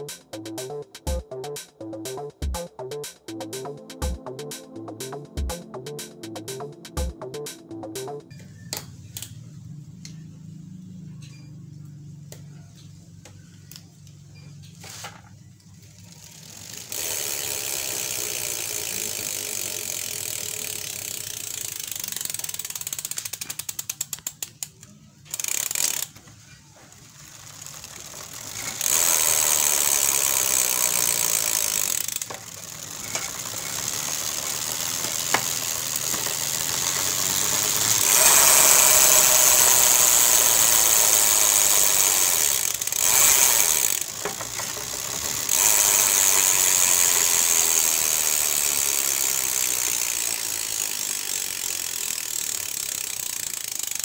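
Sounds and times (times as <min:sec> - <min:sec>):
bicycle freehub clicking: 0:08.3 - 0:09.4, 0:15.6 - 0:54.0.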